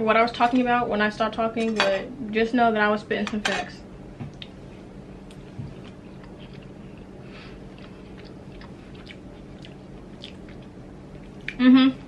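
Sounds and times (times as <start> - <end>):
steady low hum: 0.0 - 12.0
person chewing food: 5.2 - 11.6.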